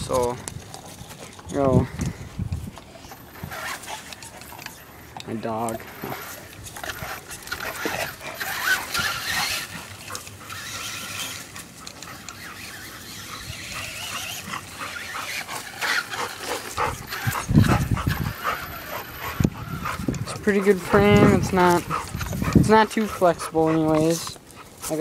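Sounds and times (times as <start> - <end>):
dog whining and yelping: 6.0 - 24.8.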